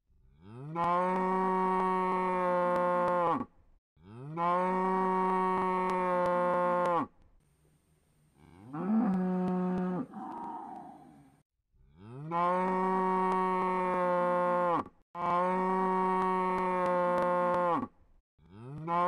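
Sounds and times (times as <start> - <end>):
cow mooing: 8.4 - 11.3.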